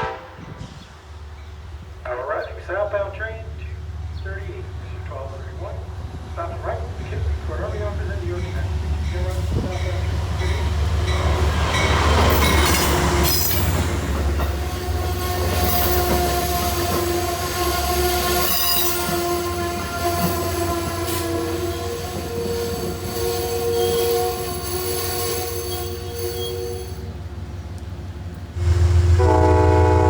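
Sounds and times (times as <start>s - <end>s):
train low rumble: 0.0s - 30.0s
wheels and brakes squealing: 12.3s - 13.9s, 15.0s - 17.1s, 17.8s - 27.2s.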